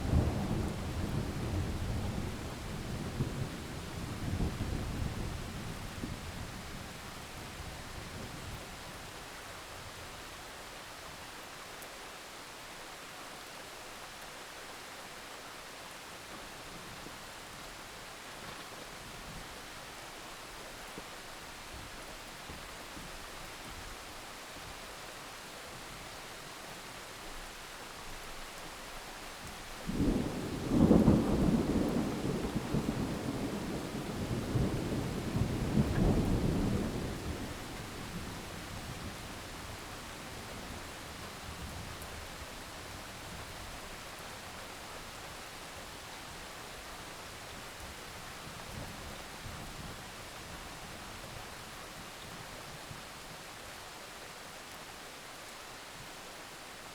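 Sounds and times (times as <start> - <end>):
heavy rain: 0.0 - 56.9.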